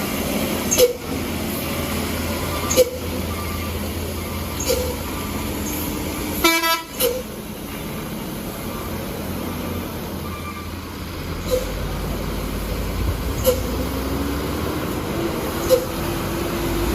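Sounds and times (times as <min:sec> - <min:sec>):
heavy vehicle engine running: 0:00.0 - 0:16.9
vehicle horn toot: 0:06.4 - 0:07.2.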